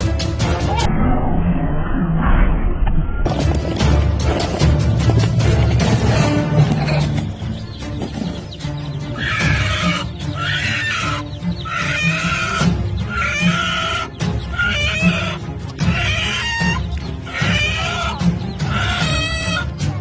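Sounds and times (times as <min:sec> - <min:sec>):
background music: 0:00.0 - 0:00.9, 0:03.2 - 0:20.0
short harsh bird calls: 0:07.8 - 0:19.7.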